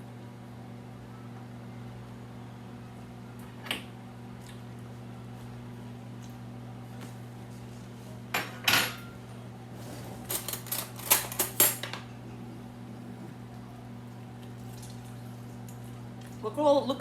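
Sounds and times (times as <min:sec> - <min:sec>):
cutlery and dishes clinking: 0:10.2 - 0:12.0.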